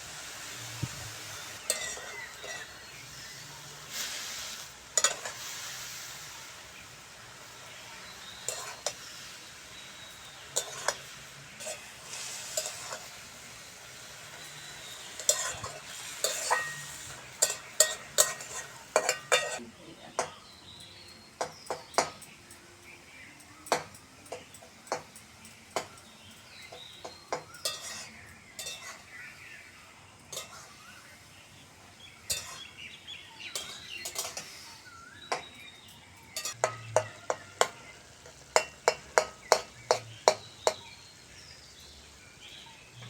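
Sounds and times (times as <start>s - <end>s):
vegetables sizzling in oil: 0.0s - 43.0s
spatula scraping and knocking pan: 0.8s - 6.8s, 7.4s - 19.6s, 25.8s - 29.2s, 30.3s - 30.9s, 32.2s - 35.6s, 36.3s - 41.0s.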